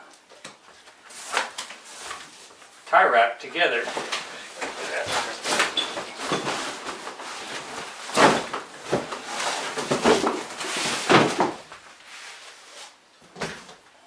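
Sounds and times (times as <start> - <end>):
cardboard packaging rustling: 3.8 - 12.9.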